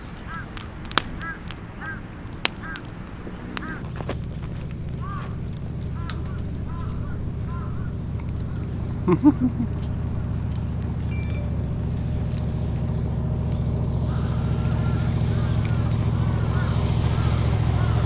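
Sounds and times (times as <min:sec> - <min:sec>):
bird calling: 0:00.0 - 0:18.0
campfire crackling: 0:00.0 - 0:18.0.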